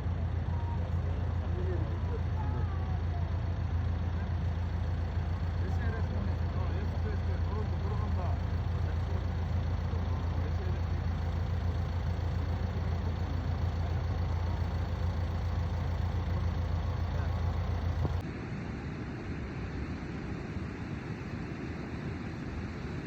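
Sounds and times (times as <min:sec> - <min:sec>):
vehicle engine droning: 0:00.0 - 0:18.6.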